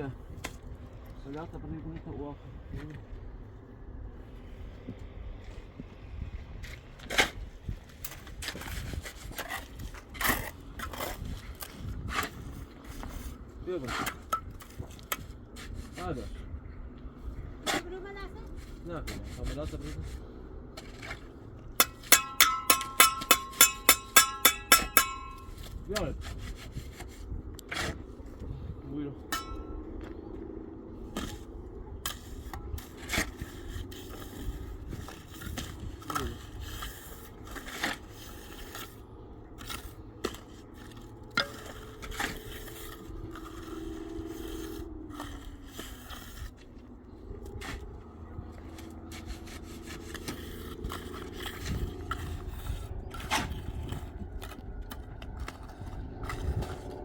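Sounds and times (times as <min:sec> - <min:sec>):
scraping strokes: 0:08.1 - 0:16.4, 0:31.0 - 0:54.6.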